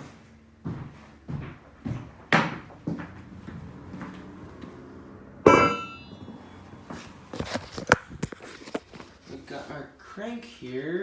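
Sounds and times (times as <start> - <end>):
sharp metallic clank: 5.5 - 6.2.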